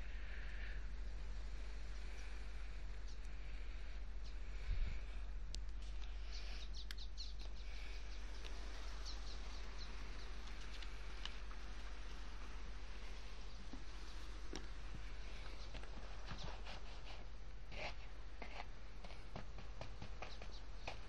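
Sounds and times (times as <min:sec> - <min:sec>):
faint bird chirps: 0:01.5 - 0:15.9.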